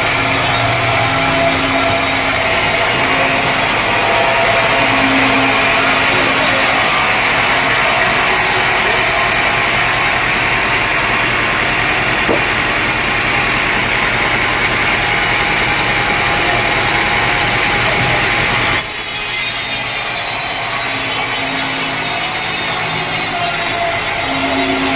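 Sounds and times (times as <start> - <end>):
saw blade cutting log: 0.0 - 24.9.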